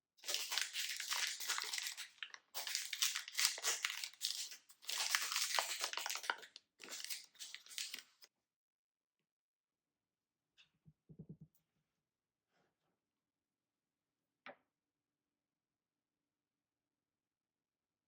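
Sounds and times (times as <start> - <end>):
snack packaging crinkling: 0.2 - 8.3.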